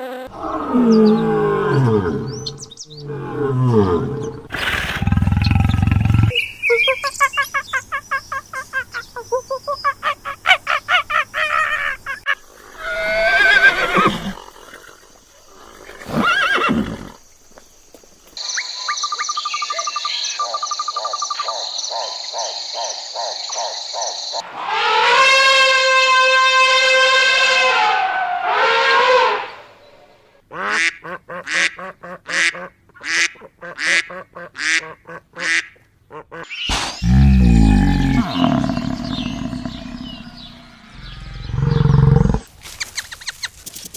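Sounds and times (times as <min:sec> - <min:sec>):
loud animal call: 0:10.0 - 0:15.0, 0:24.4 - 0:29.8, 0:37.0 - 0:42.5.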